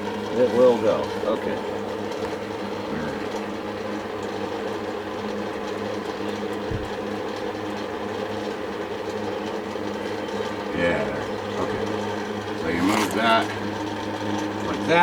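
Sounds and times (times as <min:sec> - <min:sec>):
low thump: 0:06.7 - 0:07.0
electric fan humming: 0:12.2 - 0:13.8.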